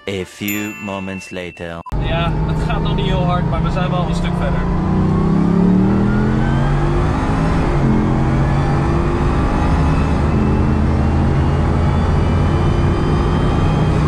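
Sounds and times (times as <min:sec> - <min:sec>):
car engine running: 0:02.2 - 0:07.0.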